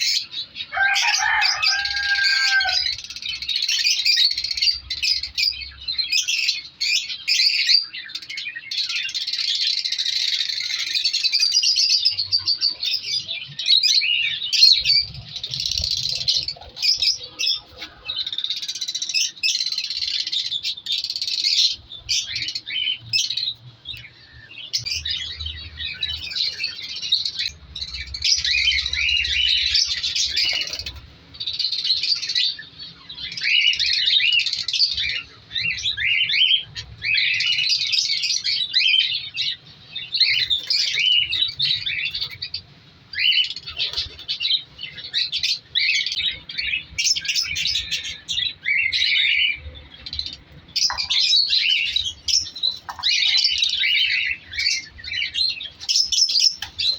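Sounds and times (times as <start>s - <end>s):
lovebirds chirping: 0.0s - 56.9s.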